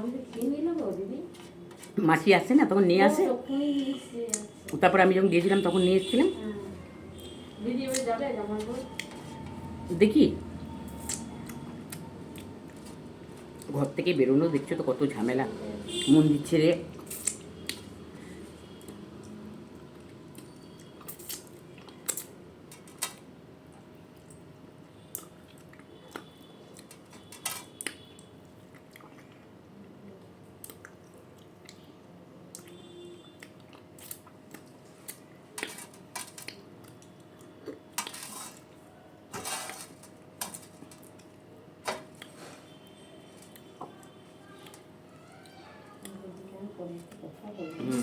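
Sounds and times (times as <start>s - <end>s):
person chewing: 10.9s - 13.7s, 18.6s - 22.4s, 25.1s - 29.5s, 30.6s - 31.9s, 32.5s - 38.9s.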